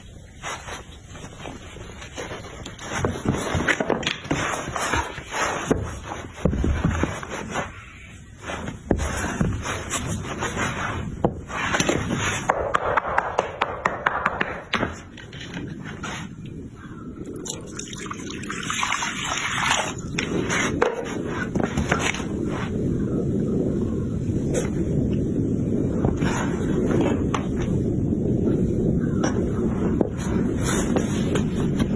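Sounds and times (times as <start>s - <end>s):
hard objects scraping and knocking: 0.3s - 16.6s, 17.2s - 22.8s, 26.0s - 27.8s.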